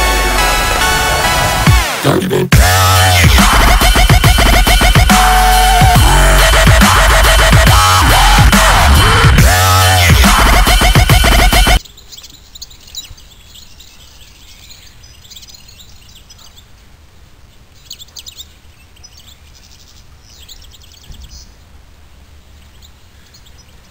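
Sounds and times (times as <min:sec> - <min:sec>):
small birds singing: 0:11.3 - 0:23.9.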